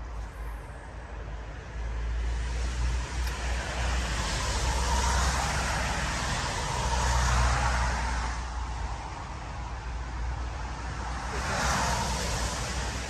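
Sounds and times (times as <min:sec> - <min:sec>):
constant low rumble: 0:00.0 - 0:02.0.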